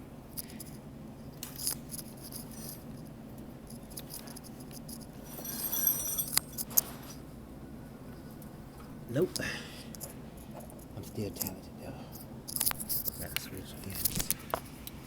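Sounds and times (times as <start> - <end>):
steady low hum: 0.0 - 15.0
metal hand tools clinking: 2.3 - 2.9, 5.2 - 6.7.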